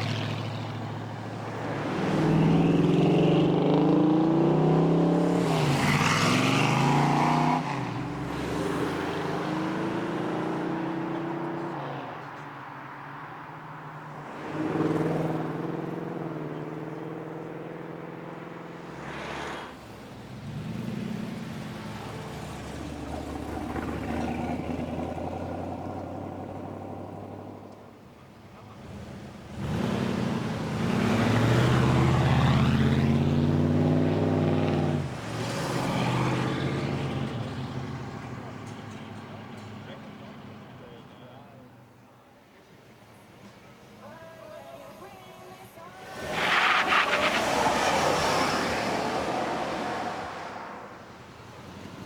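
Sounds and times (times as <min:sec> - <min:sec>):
cars revving and accelerating away: 0:00.0 - 0:41.7, 0:45.6 - 0:52.0.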